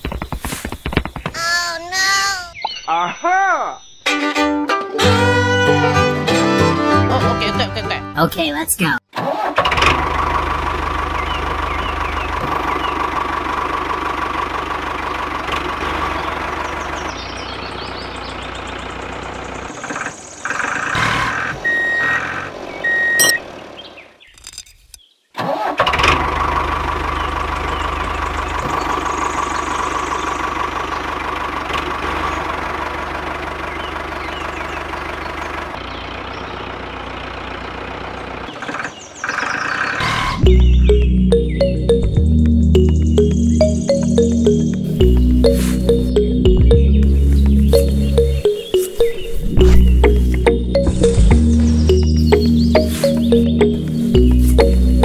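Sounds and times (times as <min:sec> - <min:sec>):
tractor engine running: 0:00.0 - 0:02.1, 0:04.1 - 0:24.2, 0:25.5 - 0:55.0
short high beeps: 0:22.9 - 0:23.4.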